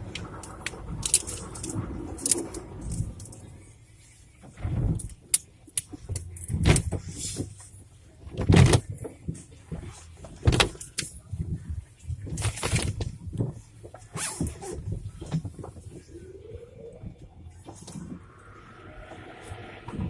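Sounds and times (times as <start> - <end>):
car wash thuds and swishes: 0.0 - 20.0
low rumble: 15.8 - 20.0.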